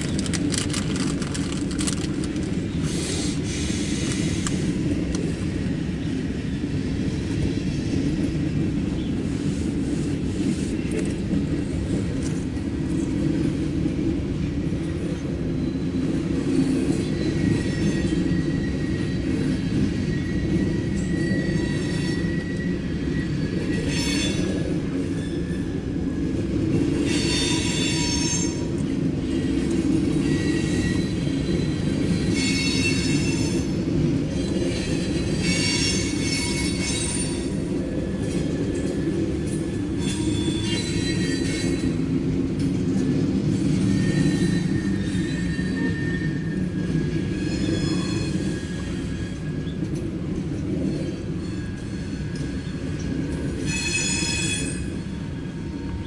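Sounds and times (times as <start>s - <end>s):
high-pitched wheel squeal: 40.0s - 41.9s, 43.7s - 49.6s.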